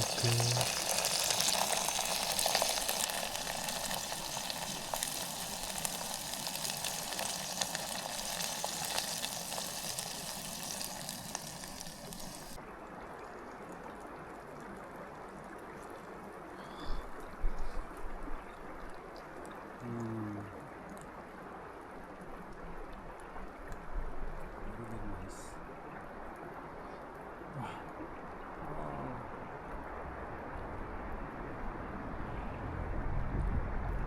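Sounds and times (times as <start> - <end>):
food sizzling in a pan: 0.0 - 12.6
faint steady hiss: 0.0 - 31.2.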